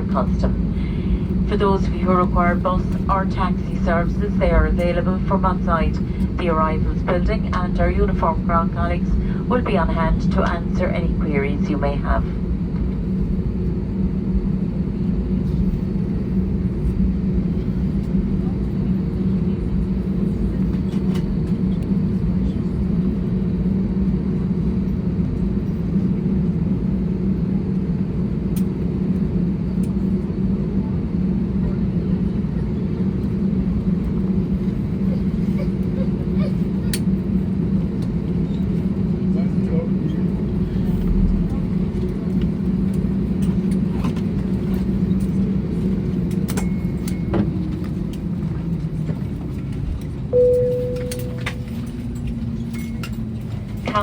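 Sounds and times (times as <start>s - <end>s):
aircraft cabin low drone: 0.0s - 54.0s
faint high beep: 50.4s - 52.0s.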